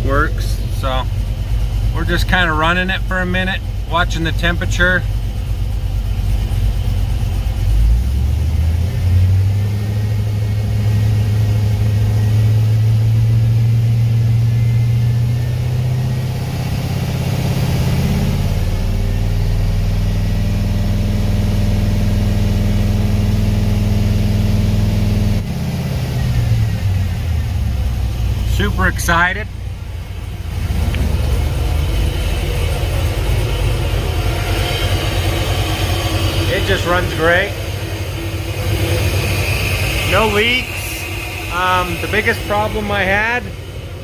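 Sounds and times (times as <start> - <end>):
car engine idling: 0.0 - 44.0.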